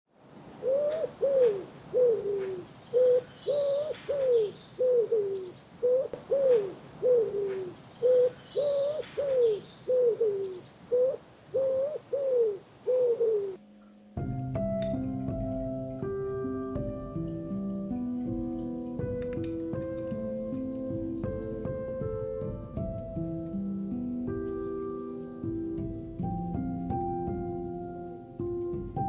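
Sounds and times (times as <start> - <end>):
dove cooing: 0.6 - 13.6.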